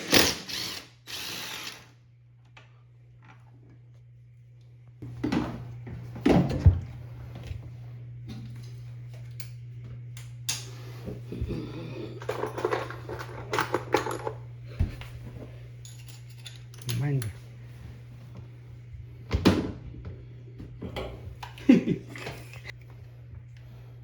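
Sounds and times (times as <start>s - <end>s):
steady low hum: 0.5s - 24.0s
metal hand tools clinking: 15.8s - 17.3s.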